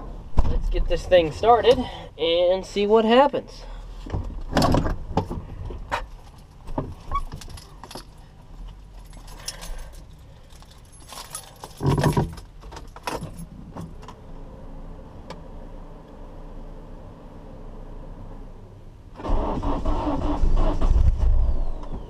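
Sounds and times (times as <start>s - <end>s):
heavy thump: 0.3s - 0.8s
handling clicks and knocks: 4.1s - 14.2s
car keys jangling: 6.1s - 13.9s.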